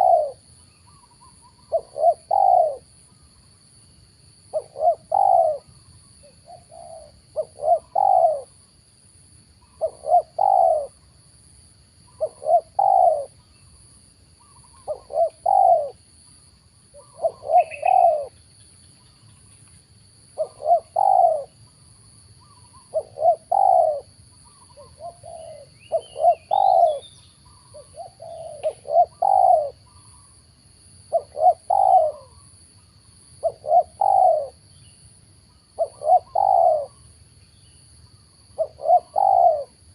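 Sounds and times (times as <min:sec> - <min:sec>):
dove cooing: 0:00.0 - 0:02.9, 0:04.5 - 0:08.6, 0:09.6 - 0:11.0, 0:12.2 - 0:13.4, 0:14.4 - 0:16.0, 0:16.9 - 0:18.4, 0:20.4 - 0:21.6, 0:22.4 - 0:30.3, 0:31.1 - 0:32.5, 0:33.4 - 0:34.6, 0:35.8 - 0:37.0, 0:38.5 - 0:39.9
bird chirp: 0:00.0 - 0:08.7, 0:09.5 - 0:11.2, 0:12.0 - 0:39.9.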